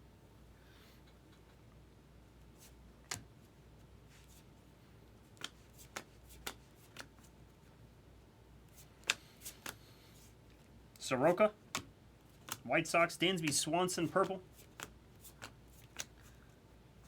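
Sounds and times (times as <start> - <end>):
trading cards clicking: 5.4 - 7.2, 8.9 - 9.8, 11.7 - 12.7, 13.4 - 16.3.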